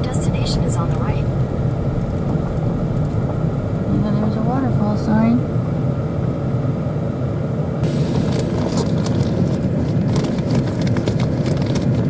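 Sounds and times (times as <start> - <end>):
gravel crackling under tyres: 0.0 - 4.4, 7.8 - 12.0
truck engine and road rumble: 0.0 - 12.0.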